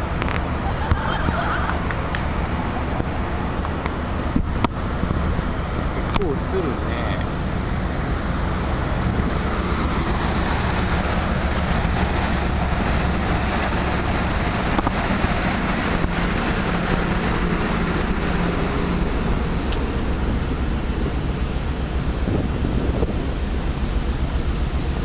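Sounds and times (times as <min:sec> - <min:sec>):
ship machinery humming: 0:00.0 - 0:25.0
wind on microphone: 0:07.9 - 0:23.9.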